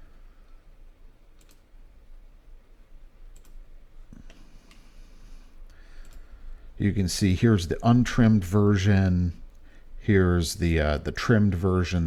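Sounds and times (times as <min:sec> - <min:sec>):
faint low hum: 0:00.0 - 0:12.0
computer mouse clicks: 0:01.4 - 0:01.7, 0:03.3 - 0:04.8, 0:05.7 - 0:06.3.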